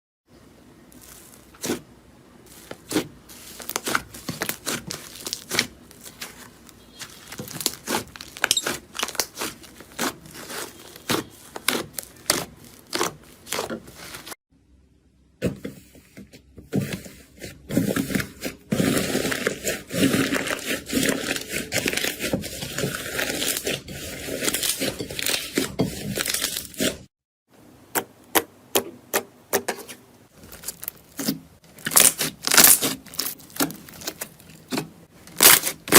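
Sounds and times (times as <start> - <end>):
slime popping and crackling: 2.8 - 14.3, 30.4 - 35.9.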